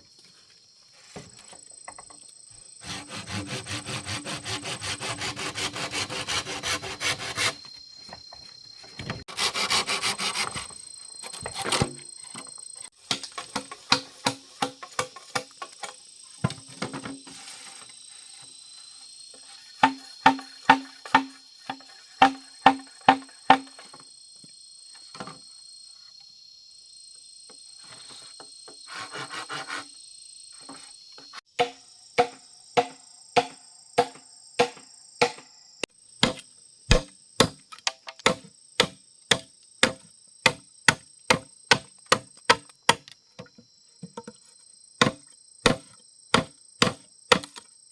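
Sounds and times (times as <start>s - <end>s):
insects chirring: 0.0s - 47.9s
chopping blows on wood: 31.6s - 35.5s, 36.2s - 37.6s, 38.2s - 43.1s, 45.0s - 47.6s.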